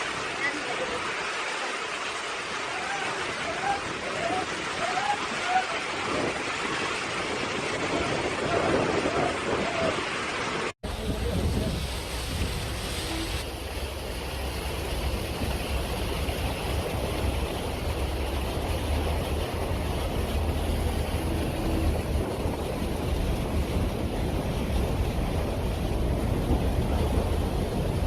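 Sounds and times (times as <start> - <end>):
storm wind buffeting microphone: 2.9 - 28.0.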